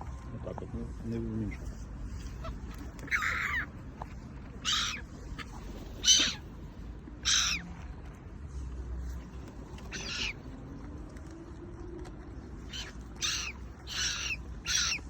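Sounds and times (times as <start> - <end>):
bird giving harsh calls: 2.4 - 3.7, 4.6 - 6.5, 7.2 - 7.7, 9.9 - 10.4, 12.7 - 15.0.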